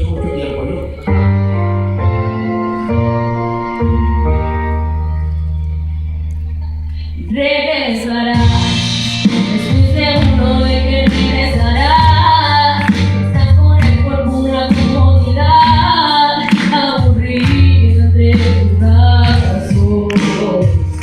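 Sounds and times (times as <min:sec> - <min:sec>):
bass: 0:00.0 - 0:21.0
person singing: 0:06.6 - 0:21.0.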